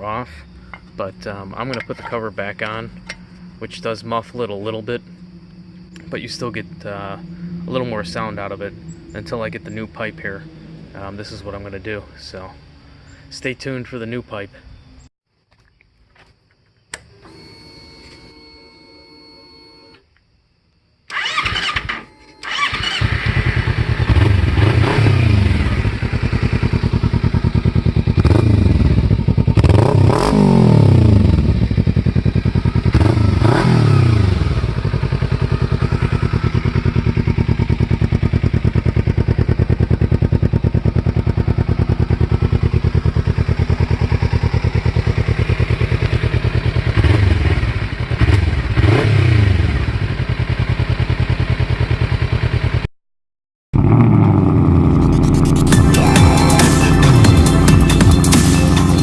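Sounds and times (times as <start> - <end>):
motorcycle engine idling: 0.0 - 11.5, 22.5 - 29.9, 30.9 - 52.9, 54.6 - 59.0
engine throttle blips: 0.0 - 12.4, 21.1 - 50.2, 53.8 - 59.0.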